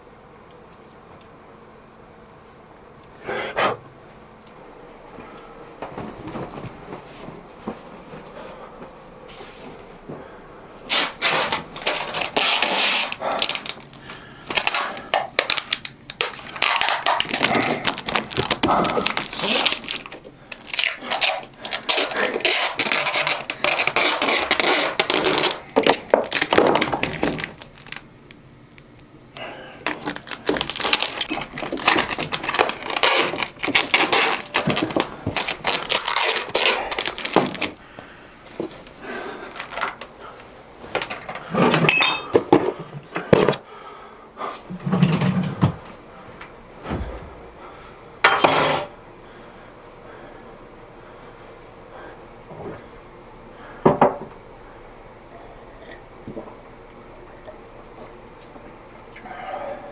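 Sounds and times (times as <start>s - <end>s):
material rustling and crinkling: 5.9s - 8.3s, 29.9s - 37.8s.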